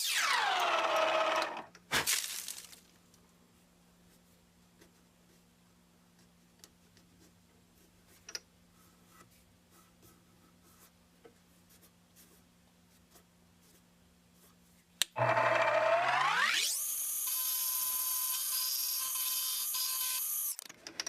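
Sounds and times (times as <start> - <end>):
milling machine motor whine: 15.2 - 20.2.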